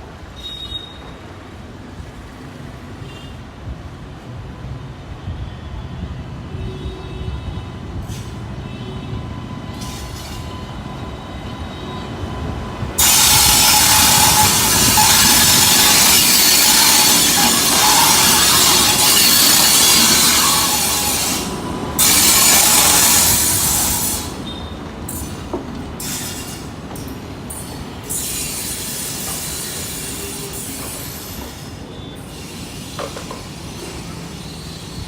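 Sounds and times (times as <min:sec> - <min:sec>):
train rumble: 0:00.0 - 0:35.0
wheels clacking on rails: 0:08.0 - 0:35.0.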